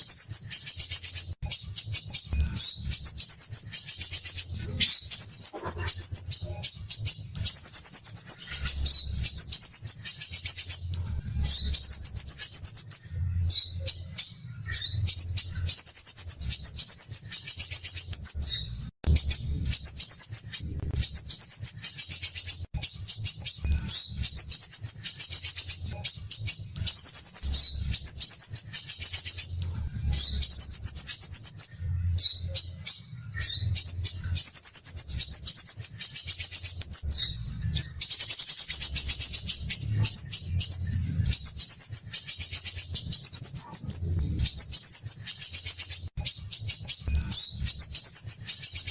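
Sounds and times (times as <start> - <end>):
bird trilling: 0.0 - 48.9.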